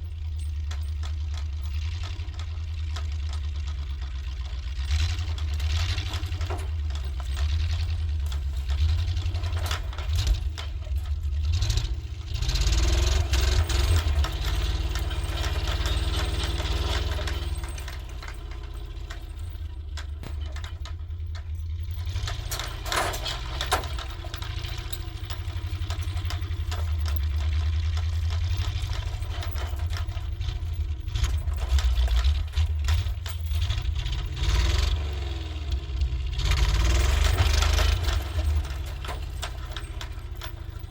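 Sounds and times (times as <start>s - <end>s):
sharp rattles and knocks: 0.0s - 40.9s
truck engine rumbling: 0.0s - 40.9s.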